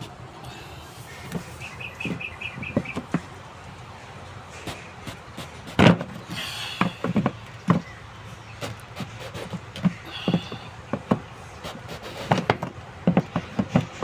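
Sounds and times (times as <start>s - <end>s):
sharp knocks and clanks: 4.6s - 8.0s, 8.6s - 14.0s.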